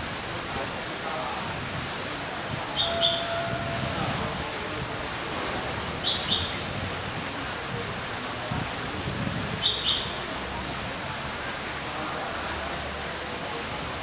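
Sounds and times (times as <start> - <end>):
steady background hiss: 0.0 - 14.0
bird double chirps: 2.8 - 3.4, 6.0 - 6.6, 9.6 - 10.2.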